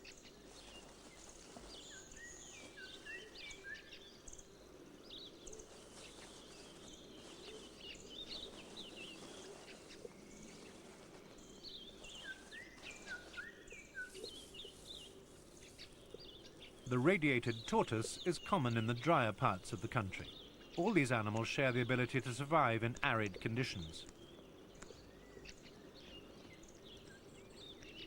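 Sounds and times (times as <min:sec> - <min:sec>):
small birds chirping and whistling: 0:00.0 - 0:16.9
steady low background noise: 0:00.0 - 0:28.0.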